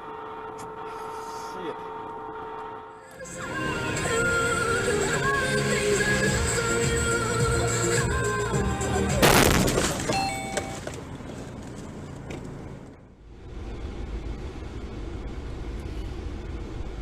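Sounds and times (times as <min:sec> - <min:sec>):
car road and engine rumble: 0:01.8 - 0:17.0
music: 0:03.2 - 0:09.6
loud car collision impact: 0:09.2 - 0:11.0.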